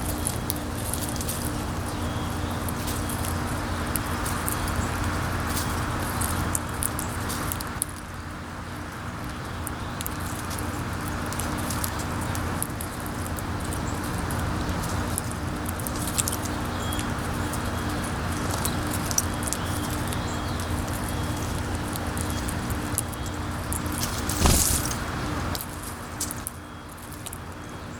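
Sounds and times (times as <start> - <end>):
animals picking at seed clicks: 0.0 - 8.0, 9.6 - 27.4.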